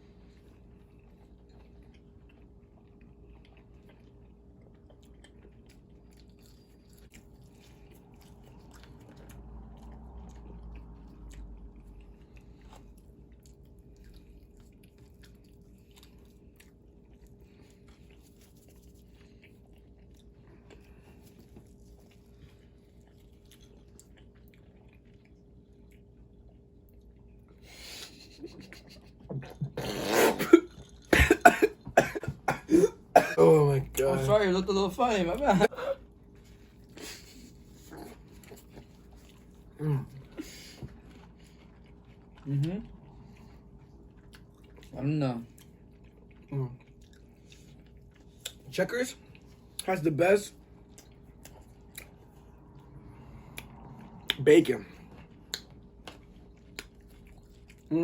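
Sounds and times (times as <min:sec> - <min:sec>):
steady low hum: 0:00.0 - 0:57.9
person chewing: 0:00.1 - 0:33.2, 0:35.3 - 0:49.9, 0:50.6 - 0:58.0
person coughing: 0:29.6 - 0:33.7.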